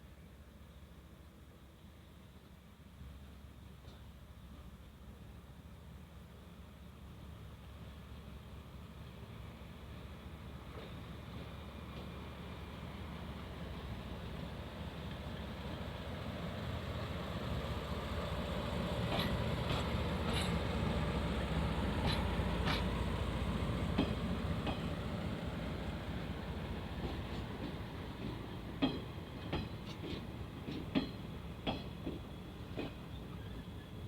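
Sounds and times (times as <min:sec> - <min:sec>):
steam train rumbling on rails: 0:01.7 - 0:34.0.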